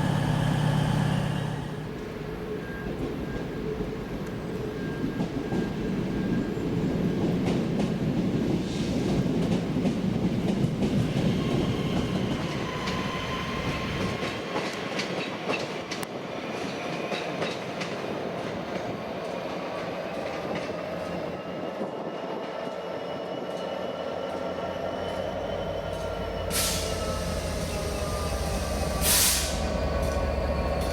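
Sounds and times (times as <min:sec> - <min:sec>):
train rumble: 0:00.0 - 0:22.1, 0:23.5 - 0:30.9.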